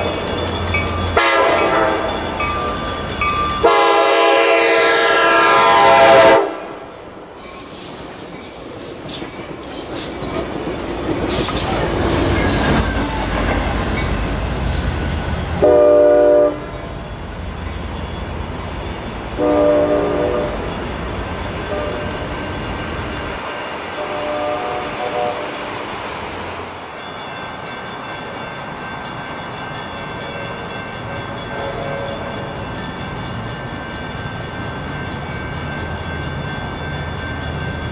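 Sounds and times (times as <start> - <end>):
train rumbling over rails: 0.0 - 37.9
train air horn blasts: 1.2 - 2.2, 3.6 - 6.8, 15.6 - 16.7, 19.4 - 20.7, 24.0 - 25.7.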